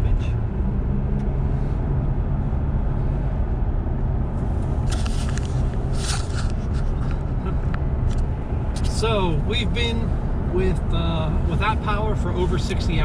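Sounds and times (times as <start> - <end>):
vehicle cabin road noise: 0.0 - 13.0
short crackles: 4.6 - 7.2.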